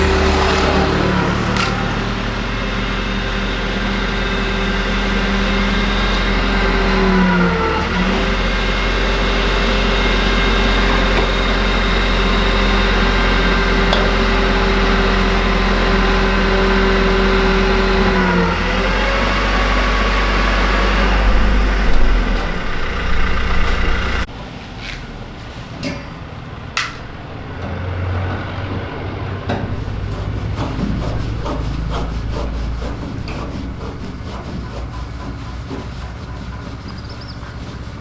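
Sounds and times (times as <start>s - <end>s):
machine humming: 0.0s - 24.4s
scattered clicks and knocks: 29.2s - 37.9s.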